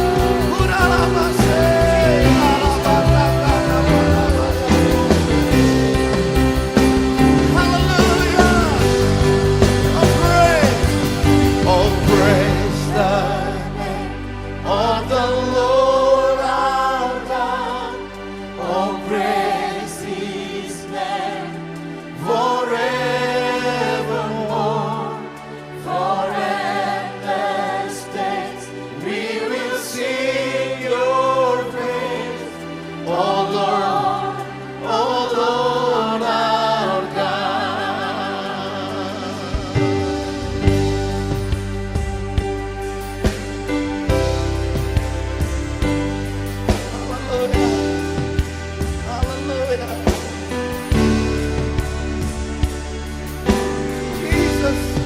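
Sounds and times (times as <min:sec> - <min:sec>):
voices singing with vibrato: 0:00.0 - 0:41.0
held accompanying chords: 0:00.0 - 0:55.0.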